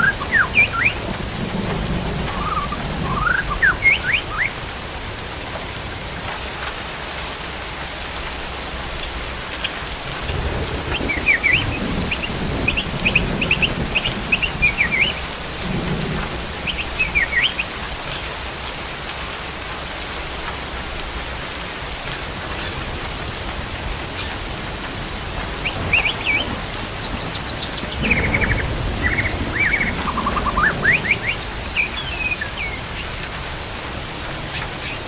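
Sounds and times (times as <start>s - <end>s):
songbird chirping: 0.0s - 1.1s, 2.0s - 4.6s, 10.8s - 18.3s, 25.5s - 33.3s
thunder rumbles: 0.0s - 6.4s, 8.8s - 19.0s, 19.6s - 35.0s
steady rain hiss: 0.0s - 35.0s.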